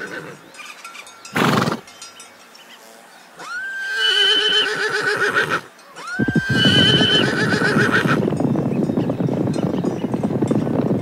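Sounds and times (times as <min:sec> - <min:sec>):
horse neighing: 0:01.3 - 0:01.8, 0:03.4 - 0:08.2.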